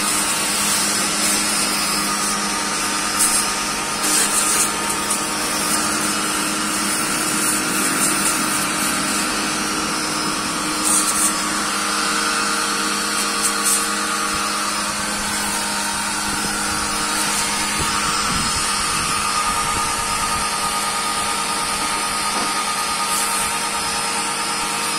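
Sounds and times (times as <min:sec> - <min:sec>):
small motor humming: 0:00.0 - 0:24.9.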